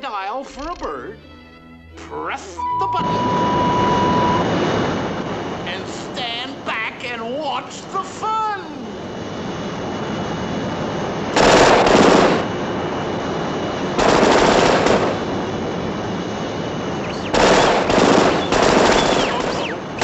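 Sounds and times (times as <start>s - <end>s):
steady hum: 1.9s - 20.0s
cartoon machine-gun fire: 11.4s - 12.5s, 14.0s - 15.2s, 17.0s - 20.0s.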